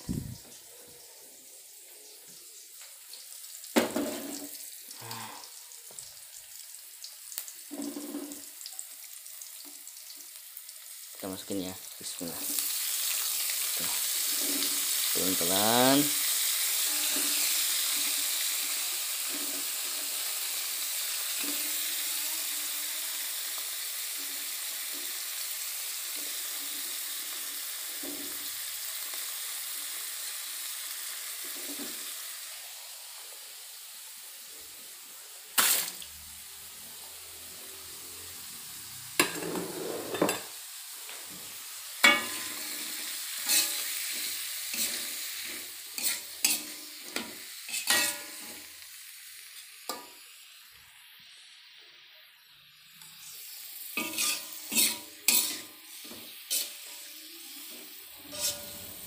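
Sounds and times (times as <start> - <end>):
vegetables sizzling in hot oil: 0.0 - 59.0
metal utensil scraping wok: 13.6 - 20.5, 21.1 - 22.8, 39.1 - 40.6, 42.0 - 48.7, 53.0 - 59.0.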